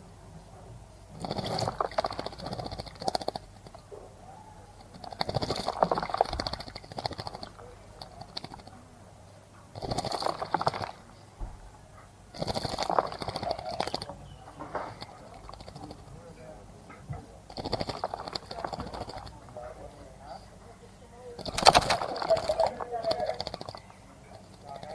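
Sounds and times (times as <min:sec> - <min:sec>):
bird splashing in water: 0:21.5 - 0:22.5.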